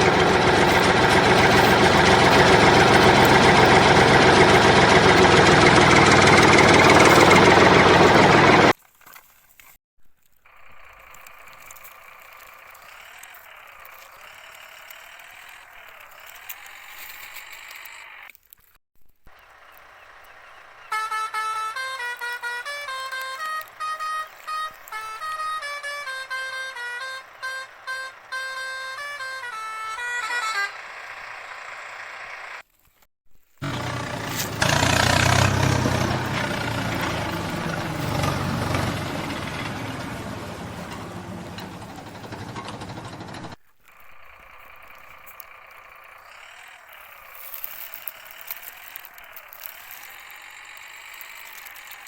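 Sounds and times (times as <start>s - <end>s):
heavy vehicle engine running: 0.0s - 8.8s, 25.7s - 29.5s, 30.8s - 32.6s, 33.6s - 43.6s
toy vehicle motor whirring: 10.4s - 30.7s, 41.6s - 52.0s.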